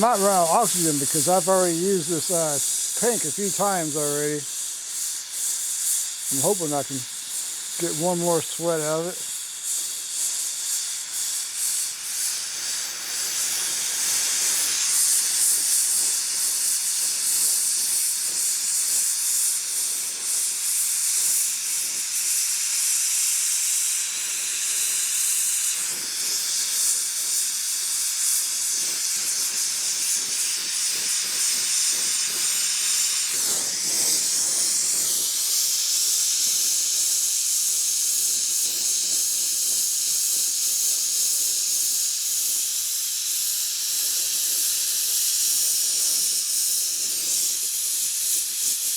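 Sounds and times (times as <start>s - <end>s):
torch flame hissing: 0.0s - 48.9s.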